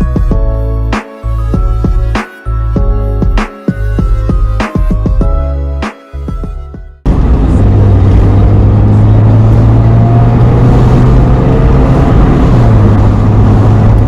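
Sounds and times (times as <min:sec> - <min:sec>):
car engine drone: 0:07.0 - 0:14.0
road and wind noise: 0:07.0 - 0:14.0.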